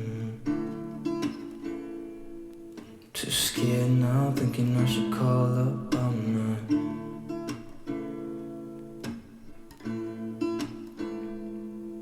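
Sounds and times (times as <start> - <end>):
acoustic guitar chords strummed: 0.0 - 12.0.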